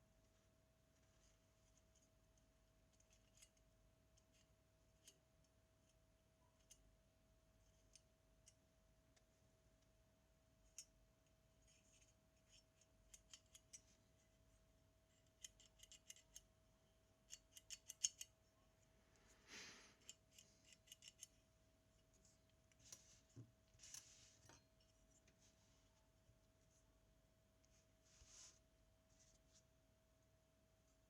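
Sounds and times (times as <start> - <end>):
faint steady hum: 0.0 - 31.0
small metallic clicks: 11.7 - 13.9, 15.2 - 16.5, 17.2 - 18.4, 20.0 - 21.4.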